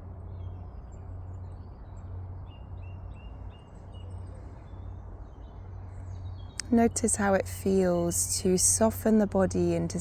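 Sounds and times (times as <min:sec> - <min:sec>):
low background rumble: 0:05.6 - 0:10.0.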